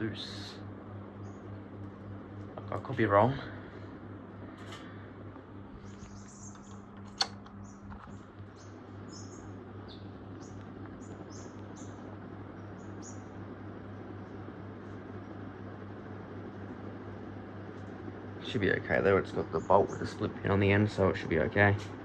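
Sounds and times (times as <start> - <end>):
ceiling fan running: 0.0 - 22.0
sharp click: 6.5 - 7.6.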